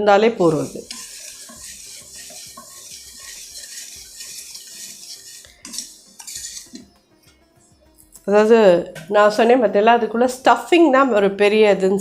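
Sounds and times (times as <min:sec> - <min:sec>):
syrup bubbling in a pan: 0:00.4 - 0:06.9.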